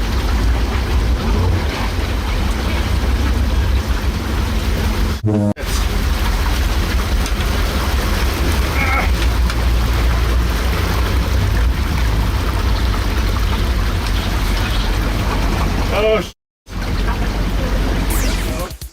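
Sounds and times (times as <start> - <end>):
rushing water and spray: 0.0 - 16.1.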